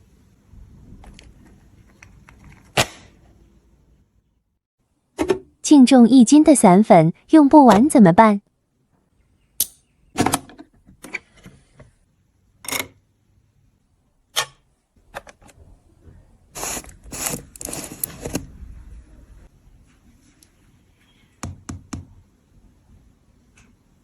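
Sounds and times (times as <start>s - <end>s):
scraping and rustling: 15.1s - 20.6s.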